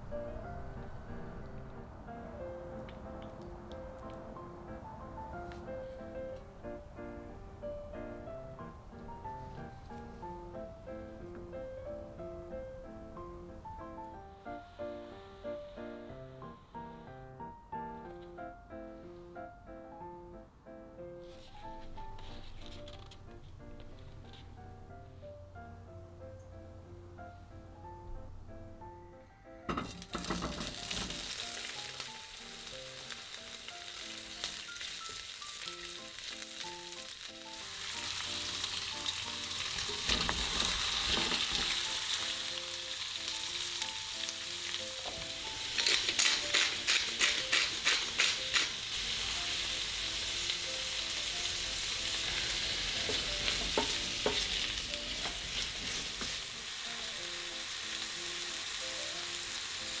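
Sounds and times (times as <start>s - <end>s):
soft piano music: 0.0s - 60.0s
food sizzling in a frying pan: 29.7s - 60.0s
scraping strokes in a pan: 43.9s - 56.8s.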